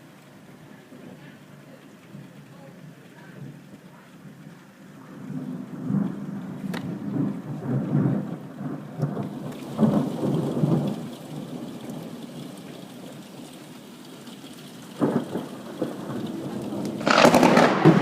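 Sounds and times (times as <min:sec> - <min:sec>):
steady rain: 0:00.0 - 0:18.0
rolling thunder: 0:05.1 - 0:12.2, 0:15.0 - 0:18.0.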